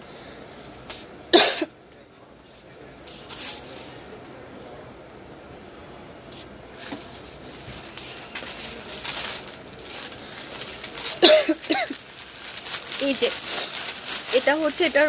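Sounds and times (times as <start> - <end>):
dress fabric rustling: 6.2 - 15.0.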